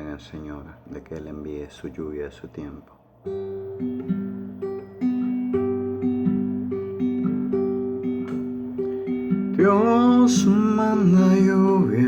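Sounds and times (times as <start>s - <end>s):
acoustic guitar picking: 3.2s - 12.0s.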